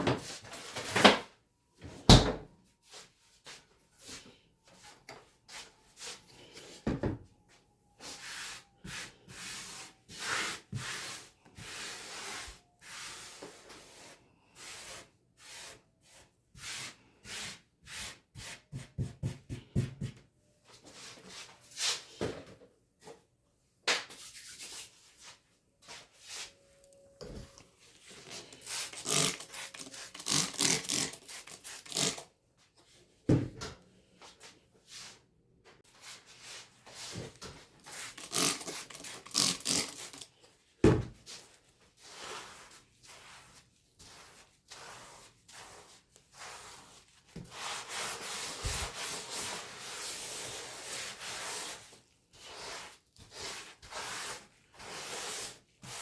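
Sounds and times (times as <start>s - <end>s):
rubbing and scrubbing strokes: 27.9s - 32.2s, 36.0s - 40.2s, 41.4s - 56.0s.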